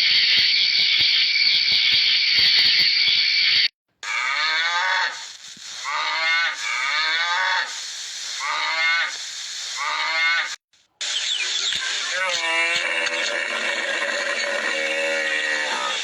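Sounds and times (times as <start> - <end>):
steady hiss: 5.0 - 12.4.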